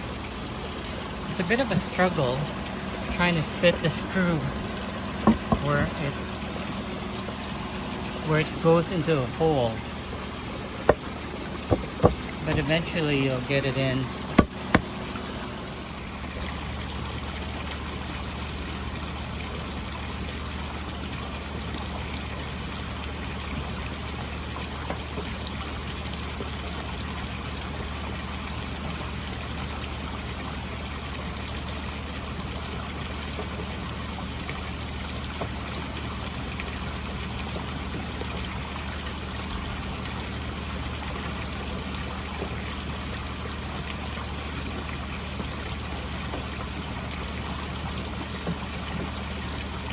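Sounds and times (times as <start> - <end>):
low steady hum: 0.0 - 18.8
pond water trickling: 0.0 - 49.9.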